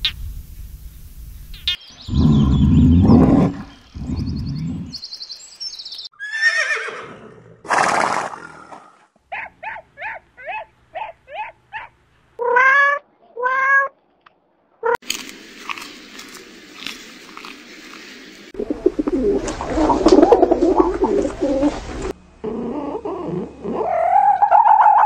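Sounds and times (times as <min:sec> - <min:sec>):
bear growling: 0:02.1 - 0:05.0, 0:19.0 - 0:24.6
horse whinnying and neighing: 0:06.2 - 0:08.8.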